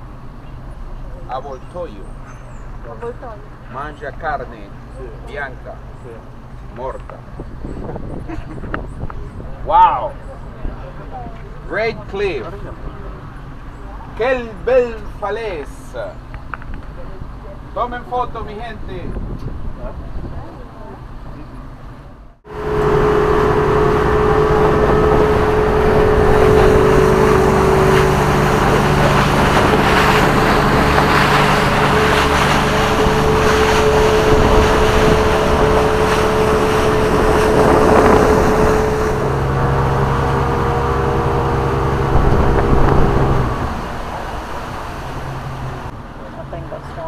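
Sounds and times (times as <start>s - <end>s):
motorboat engine running: 22.3s - 46.7s.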